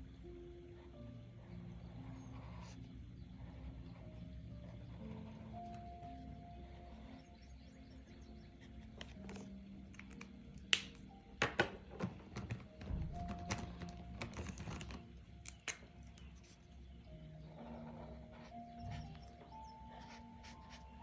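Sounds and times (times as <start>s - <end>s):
soft background music: 0.0s - 21.0s
pen scratching on paper: 1.4s - 6.0s, 17.5s - 21.0s
pen tapping on paper: 10.0s - 15.8s.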